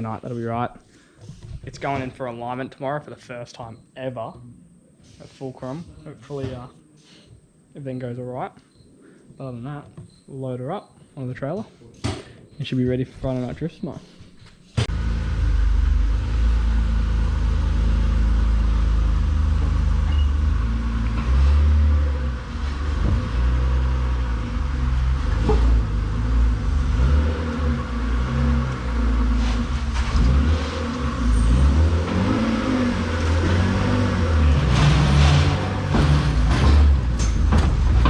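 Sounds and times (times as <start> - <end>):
car engine revving: 14.9 - 38.0.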